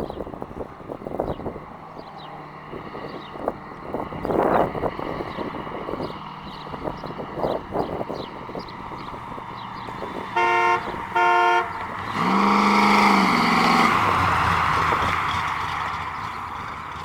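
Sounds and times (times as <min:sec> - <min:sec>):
low horn-like blast with rushing: 0:10.2 - 0:14.9
car horn short beeps: 0:10.4 - 0:11.8.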